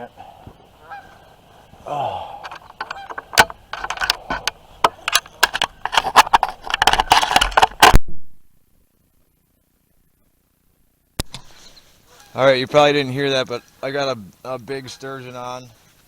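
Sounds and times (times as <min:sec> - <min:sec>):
microphone handling noise: 0:02.4 - 0:08.4.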